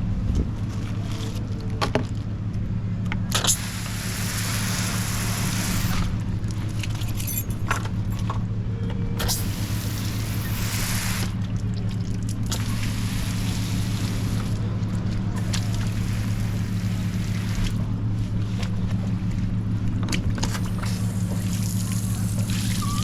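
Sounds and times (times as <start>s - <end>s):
car engine humming: 0.0s - 23.0s
hiss: 3.4s - 6.0s, 9.2s - 11.4s.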